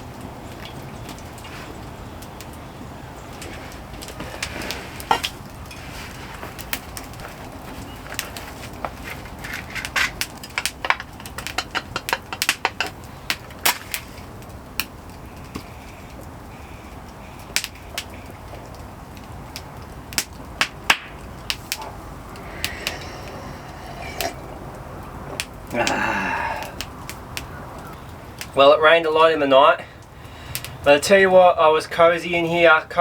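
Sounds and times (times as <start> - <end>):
wood fire crackling: 0.0 - 33.0
sharp pops and snaps: 6.4 - 28.6, 30.0 - 30.9.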